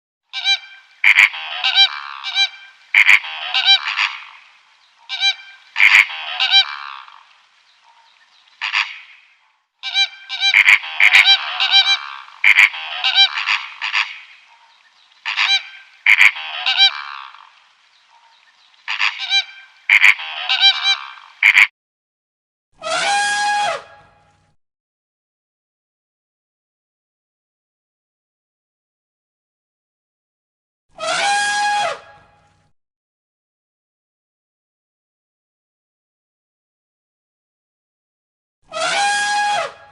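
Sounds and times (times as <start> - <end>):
geese honking: 0.3 - 9.2, 9.8 - 21.7, 38.7 - 39.8.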